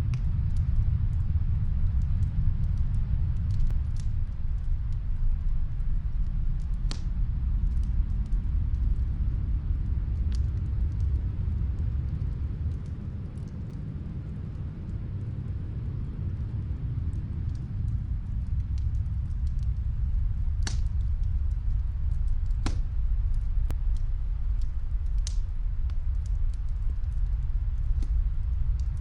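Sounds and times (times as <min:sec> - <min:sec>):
wind rumbling: 0:00.0 - 0:29.0
fireplace crackling pops: 0:06.8 - 0:08.4, 0:17.1 - 0:24.0, 0:24.6 - 0:29.0.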